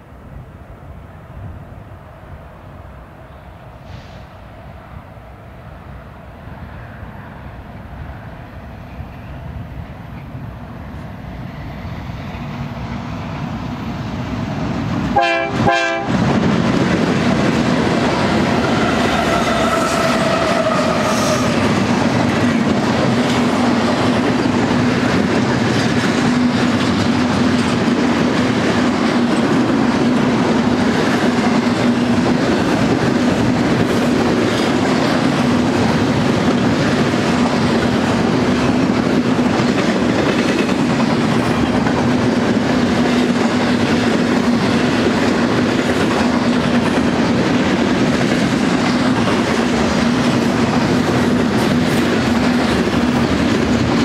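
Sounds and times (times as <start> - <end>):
train wheels rumbling on rails: 0.0 - 54.0
train horn: 15.1 - 16.2, 18.5 - 21.8.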